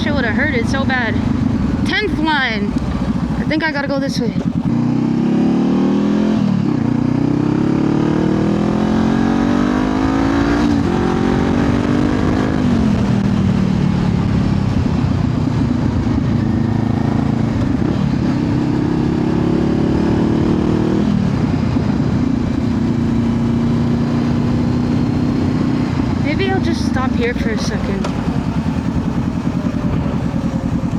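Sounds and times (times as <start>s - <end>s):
motorcycle engine accelerating: 0.0s - 30.9s.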